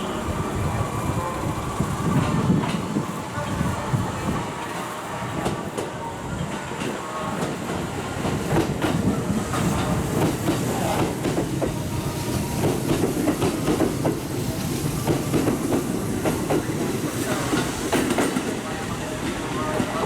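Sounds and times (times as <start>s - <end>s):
electric train rumbling: 0.0s - 20.0s.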